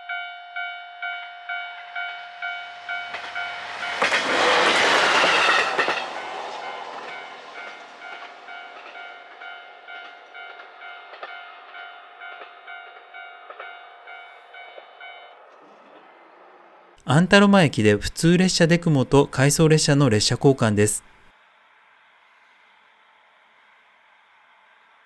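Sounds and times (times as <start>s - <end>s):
railway crossing bell ringing: 0.0s - 15.5s
train passing rush: 0.5s - 25.0s
train wheels clattering: 2.0s - 16.3s.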